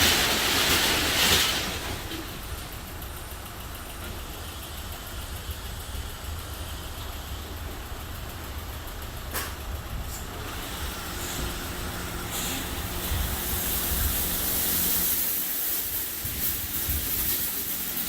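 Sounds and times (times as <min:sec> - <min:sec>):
car wash machinery humming: 0:00.0 - 0:18.0
spray hissing: 0:11.1 - 0:18.0.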